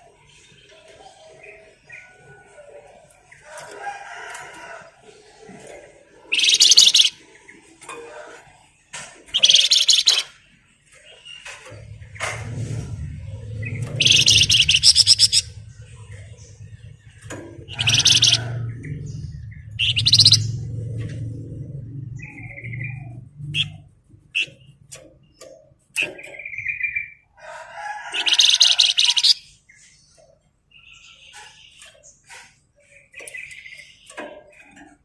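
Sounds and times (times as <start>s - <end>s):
songbird trilling and chirping: 6.2s - 7.6s, 9.3s - 12.2s, 13.4s - 27.3s, 28.1s - 34.9s
low hum: 11.6s - 25.0s.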